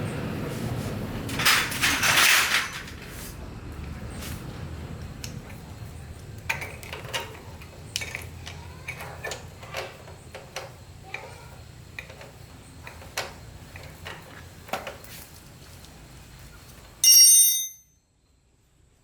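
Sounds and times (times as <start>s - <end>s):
metal tools clinking on metal: 1.4s - 3.0s, 6.5s - 14.3s, 17.0s - 18.0s.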